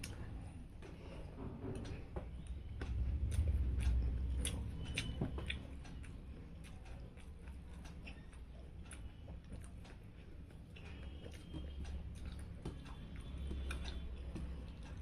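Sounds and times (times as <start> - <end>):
low hum: 0.0 - 7.5
chewing food: 0.0 - 15.0.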